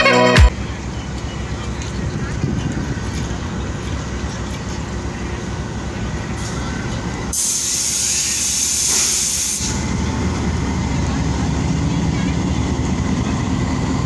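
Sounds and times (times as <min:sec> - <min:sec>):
locomotive rumbling: 0:00.0 - 0:14.0
loud hiss of released air: 0:07.3 - 0:09.9.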